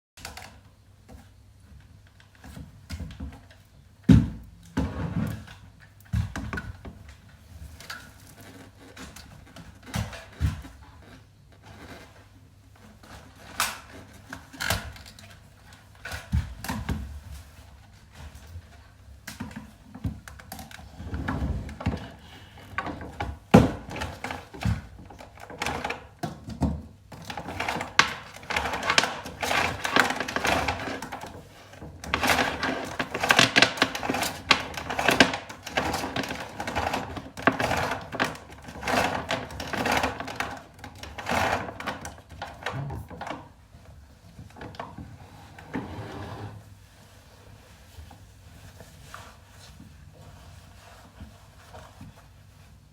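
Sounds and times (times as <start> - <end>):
rustling: 45.2 - 52.9.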